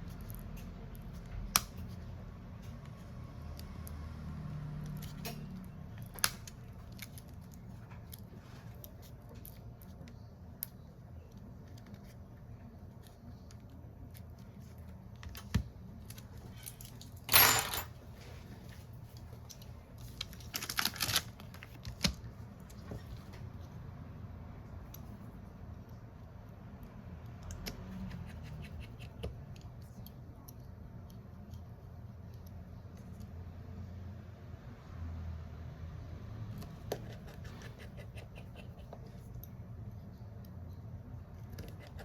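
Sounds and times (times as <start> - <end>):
light clicks and taps of tools: 26.8 - 33.4.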